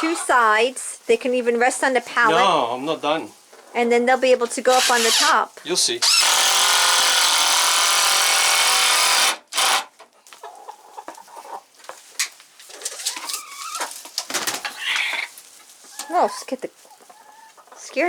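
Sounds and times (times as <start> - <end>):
chickens clucking: 0.0 - 2.8, 9.9 - 18.0
power drill running: 6.0 - 9.8.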